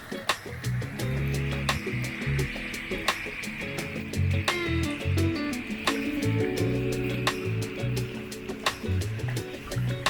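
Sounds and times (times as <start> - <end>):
bass line: 0.7 - 2.7, 3.9 - 8.2
plucked guitar notes: 0.8 - 10.0.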